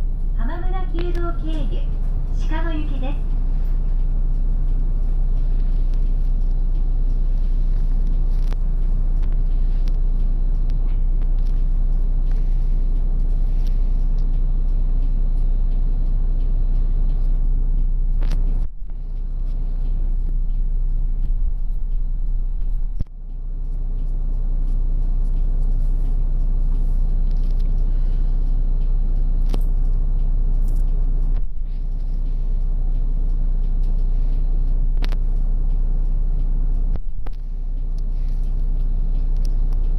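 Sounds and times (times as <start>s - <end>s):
bus engine and road rumble: 0.0s - 23.1s.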